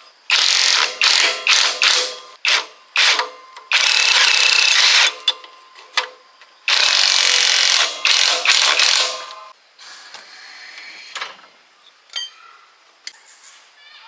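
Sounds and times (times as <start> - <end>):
ratchet wrench clicking: 0.3 - 5.3, 6.7 - 9.4.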